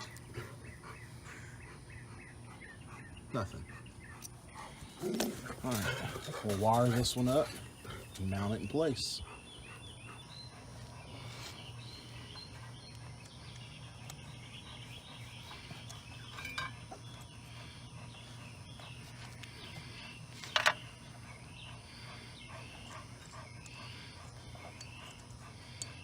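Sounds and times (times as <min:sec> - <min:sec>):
faint chirping calls: 0:00.0 - 0:26.0
steady low hum: 0:00.0 - 0:26.0.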